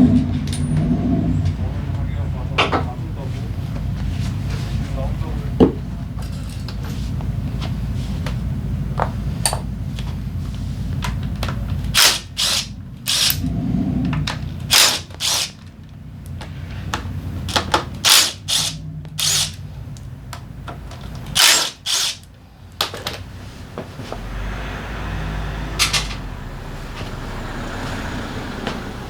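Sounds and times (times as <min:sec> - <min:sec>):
power tool bursts: 0:12.0 - 0:13.5, 0:14.7 - 0:15.6, 0:18.0 - 0:19.6, 0:21.4 - 0:22.3.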